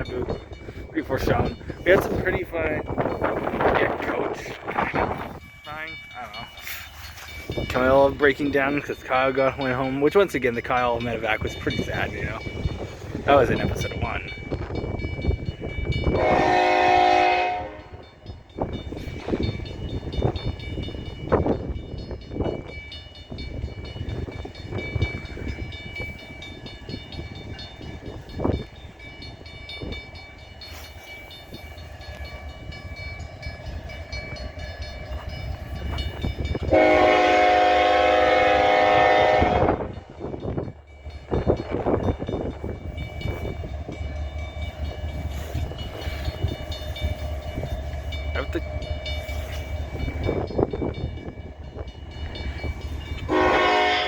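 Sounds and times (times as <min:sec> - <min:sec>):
locomotive rumbling: 0:00.0 - 0:54.0
train horn blast: 0:16.1 - 0:18.1, 0:36.7 - 0:40.0, 0:53.3 - 0:54.0.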